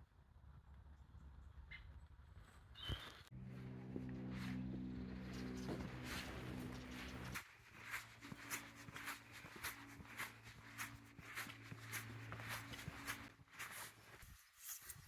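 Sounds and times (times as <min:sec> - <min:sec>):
faint footsteps walking: 0:03.3 - 0:15.0.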